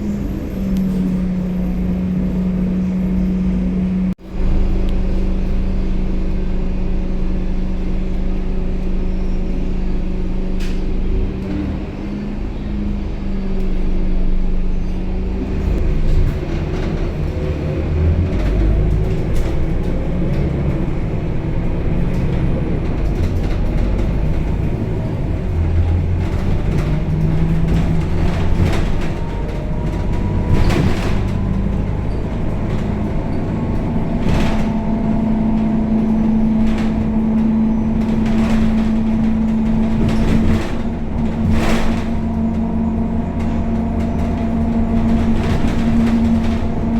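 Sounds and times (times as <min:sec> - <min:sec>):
bus diesel engine drone: 0:00.0 - 0:46.9
bus body rattles and knocks: 0:15.3 - 0:46.9.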